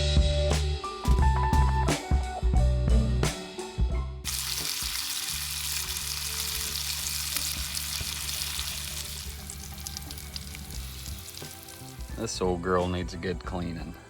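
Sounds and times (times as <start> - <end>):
food sizzling in a frying pan: 4.3 - 12.2.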